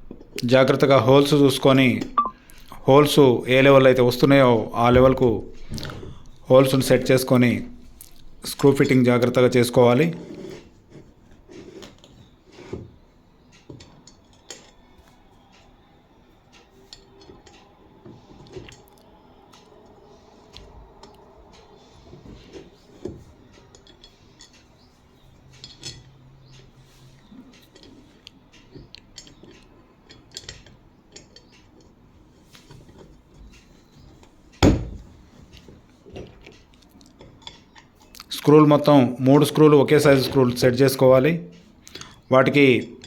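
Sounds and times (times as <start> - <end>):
metal parts and screws clicking: 23.5 - 26.2, 27.5 - 32.0
loud knock: 34.6 - 35.1.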